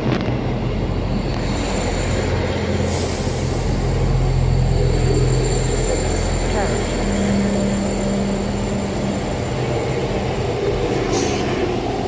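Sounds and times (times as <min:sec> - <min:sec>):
diesel train engine drone: 0:00.0 - 0:12.0
thin high whine: 0:00.9 - 0:11.7.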